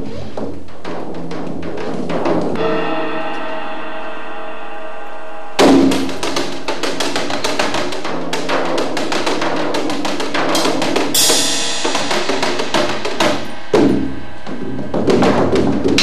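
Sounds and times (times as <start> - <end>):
drum kit playing: 0.0 - 4.1, 5.5 - 16.0
cymbal crash: 2.6 - 16.0
low drum strike: 5.6 - 16.0.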